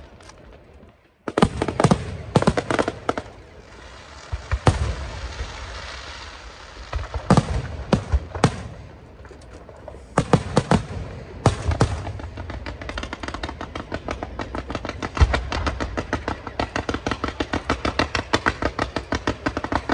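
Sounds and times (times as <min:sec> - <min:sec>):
firework bangs: 0:01.2 - 0:19.9
hissing crackle: 0:02.3 - 0:10.2.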